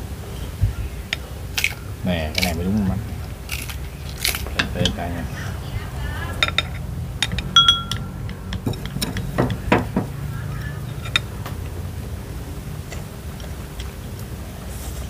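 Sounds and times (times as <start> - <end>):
steady low hum: 0.0 - 15.0
utensils clinking against bowls: 6.4 - 10.2.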